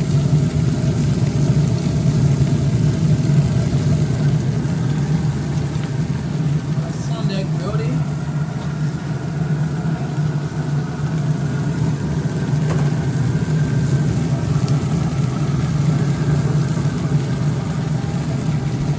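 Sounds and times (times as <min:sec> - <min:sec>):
engine idling: 0:00.0 - 0:18.9.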